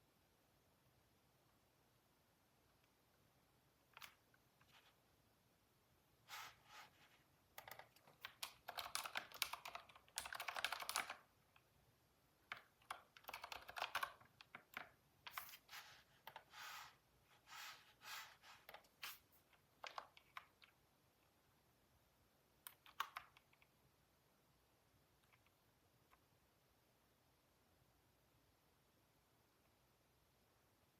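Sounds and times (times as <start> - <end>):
computer keyboard typing: 7.5 - 11.7, 12.4 - 15.6, 16.2 - 16.8, 19.8 - 20.8, 22.6 - 23.7.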